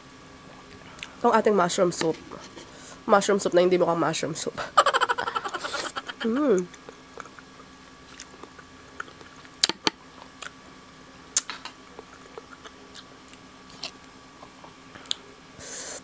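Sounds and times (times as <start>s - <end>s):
person chewing: 6.6s - 10.6s, 11.4s - 15.2s.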